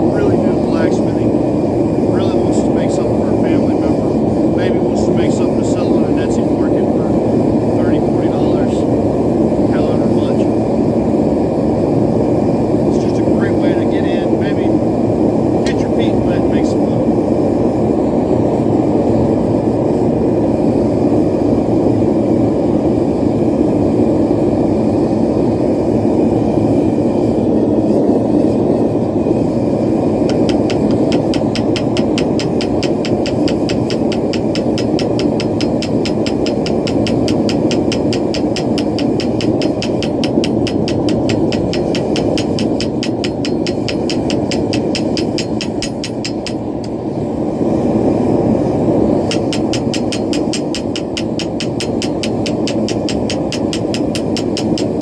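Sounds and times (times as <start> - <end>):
forge burner roaring: 0.0 - 55.0
fast light strokes: 30.2 - 47.0, 49.1 - 55.0.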